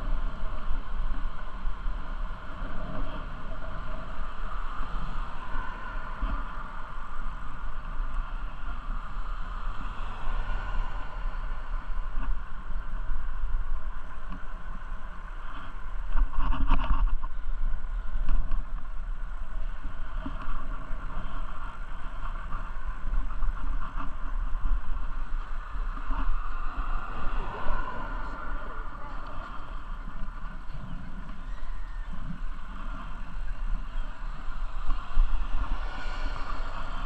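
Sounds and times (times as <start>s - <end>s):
steady outdoor hiss: 0.0s - 37.0s
wind rumbling on microphone: 0.0s - 37.0s.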